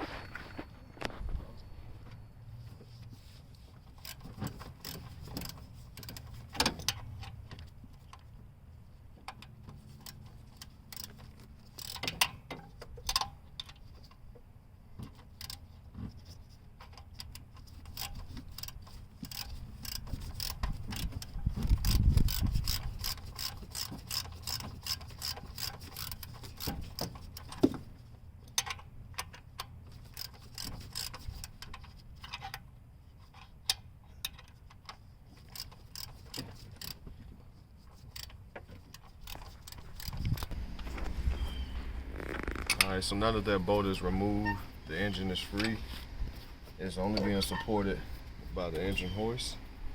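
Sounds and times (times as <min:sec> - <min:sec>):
hand ratchet clicking: 0:04.0 - 0:07.0, 0:09.3 - 0:13.8, 0:16.8 - 0:27.7, 0:28.6 - 0:32.6, 0:33.7 - 0:37.0, 0:37.9 - 0:40.6
low rumble: 0:39.7 - 0:44.9.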